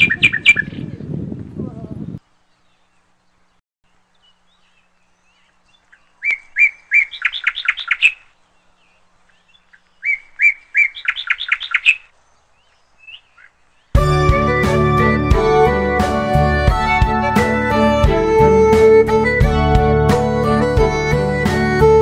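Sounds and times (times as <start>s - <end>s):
songbird singing: 0.0s - 22.0s
string instrument music: 14.0s - 22.0s.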